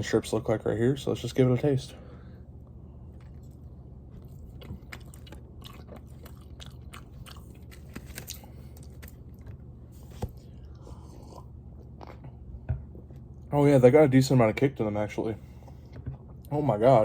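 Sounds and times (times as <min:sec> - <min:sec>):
person biting and chewing: 0:03.2 - 0:12.5.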